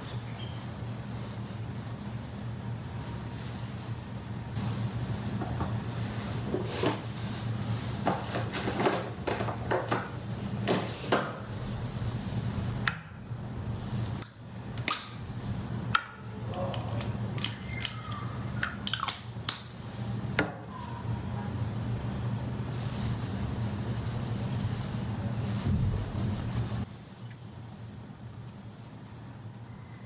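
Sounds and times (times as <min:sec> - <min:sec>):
steady low hum: 0:11.4 - 0:18.7, 0:19.3 - 0:30.0.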